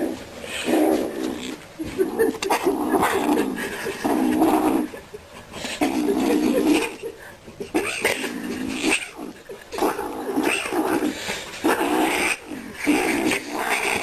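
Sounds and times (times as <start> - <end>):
kitten growling: 7.7 - 14.0.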